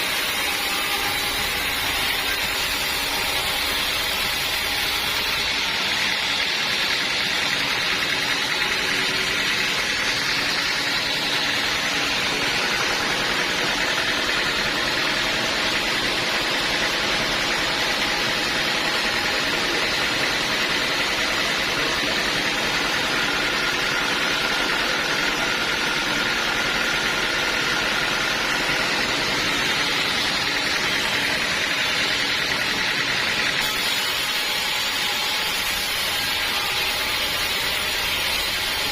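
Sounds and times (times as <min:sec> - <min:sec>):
sawmill hum: 0:00.0 - 0:38.9
saw blade hissing through wood: 0:33.6 - 0:38.9.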